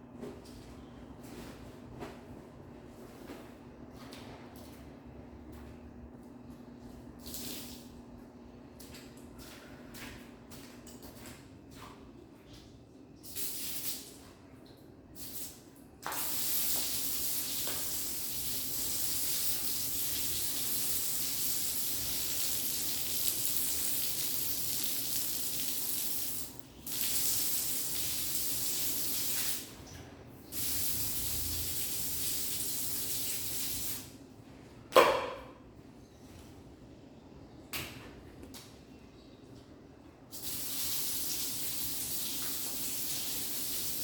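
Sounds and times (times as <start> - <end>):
running water hissing: 16.1 - 29.8, 30.5 - 34.0, 40.3 - 44.0.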